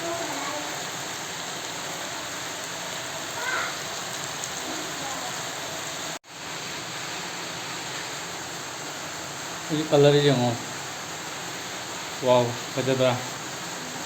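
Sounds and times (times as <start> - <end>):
chicken sizzling in a pan: 0.0 - 1.2, 1.8 - 6.5.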